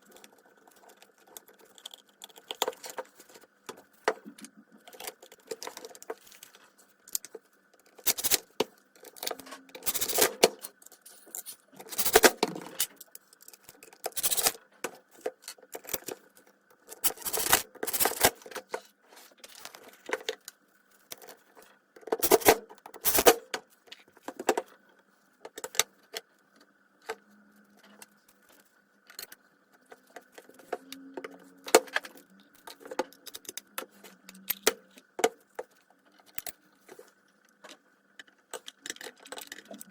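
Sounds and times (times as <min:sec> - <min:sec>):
metallic clinks and clicks: 0:09.0 - 0:14.6.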